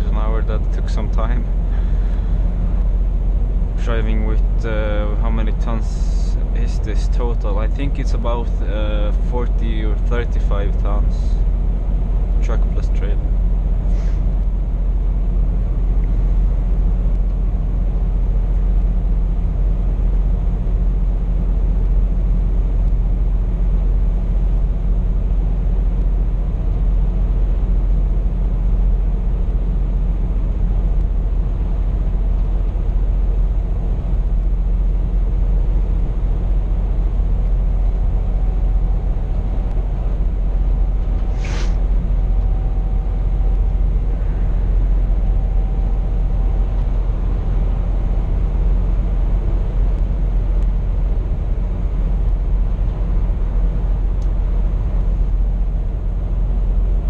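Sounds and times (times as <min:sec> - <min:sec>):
truck diesel engine from cab: 0:00.0 - 0:57.0
short hiss: 0:41.2 - 0:41.9.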